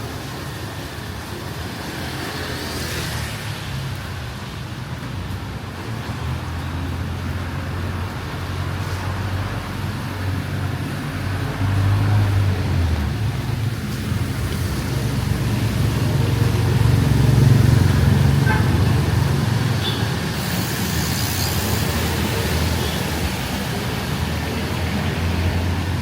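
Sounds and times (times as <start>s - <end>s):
vehicle engines rumbling: 0.0s - 26.0s
bright hiss: 19.4s - 24.4s.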